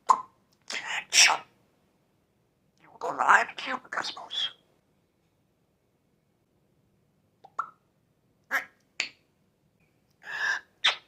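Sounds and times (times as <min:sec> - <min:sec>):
parrot popping sounds: 0:07.4 - 0:07.8.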